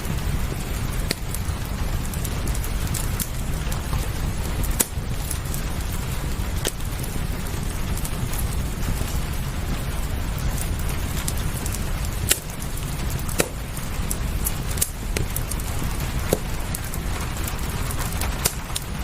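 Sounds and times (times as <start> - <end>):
low rumble: 0.0 - 19.0
rain hiss: 0.0 - 19.0
wood fire crackling and popping: 0.0 - 19.0.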